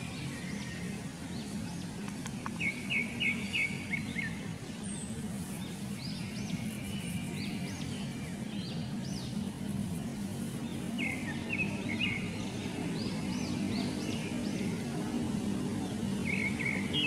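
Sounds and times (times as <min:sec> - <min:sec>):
birds chirping: 0:00.0 - 0:14.9, 0:15.8 - 0:17.0
steady low background hum: 0:00.0 - 0:17.0.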